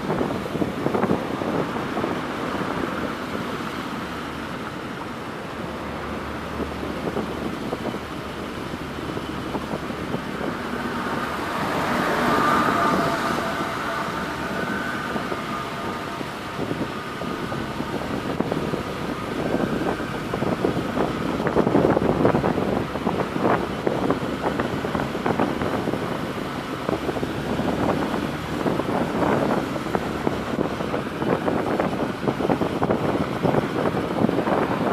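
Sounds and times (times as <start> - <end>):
wind on microphone: 0.0 - 34.9
vehicle passing: 5.6 - 32.0.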